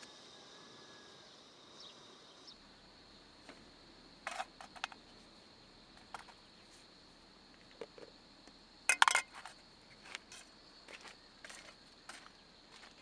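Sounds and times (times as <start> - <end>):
cooking pots and tea things clinking: 8.9 - 9.4.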